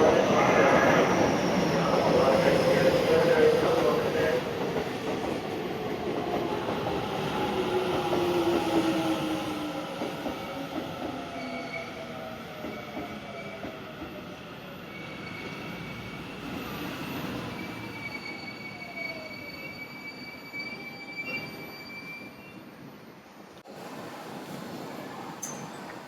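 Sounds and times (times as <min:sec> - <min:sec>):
high-pitched wheel squeals: 0:15.0 - 0:22.7.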